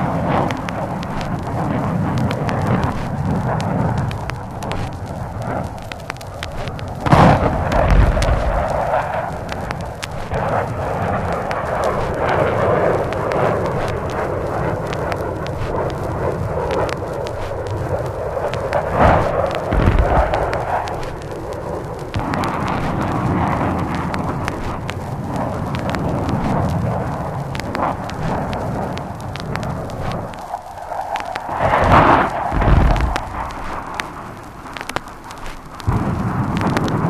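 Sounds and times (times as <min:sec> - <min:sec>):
low rolling rumble: 0:00.0 - 0:37.0
vinyl record crackle: 0:00.0 - 0:37.0
heavy explosions: 0:06.5 - 0:16.4, 0:18.7 - 0:30.3, 0:31.6 - 0:34.9, 0:35.8 - 0:37.0.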